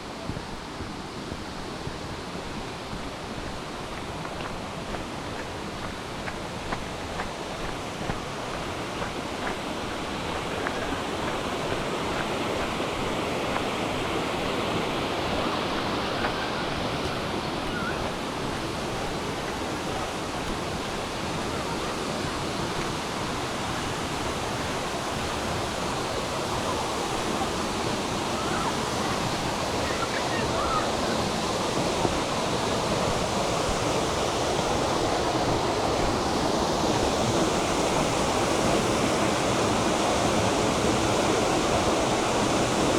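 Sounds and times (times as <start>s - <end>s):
waterfall splashing: 1.5s - 42.9s.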